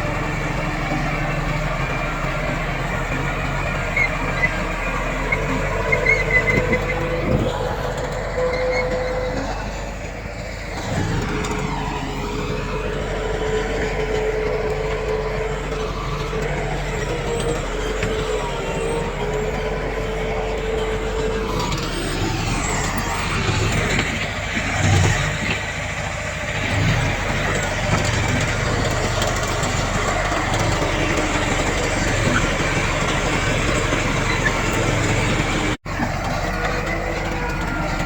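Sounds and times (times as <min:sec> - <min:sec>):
diesel machinery whining: 0:00.0 - 0:38.0.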